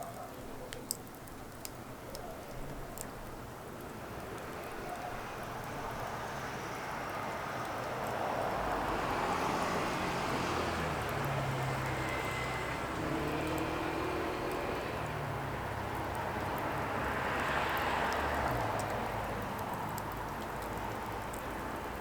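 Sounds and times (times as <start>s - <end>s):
firewood crackling and popping: 0.7s - 4.8s, 15.4s - 22.0s.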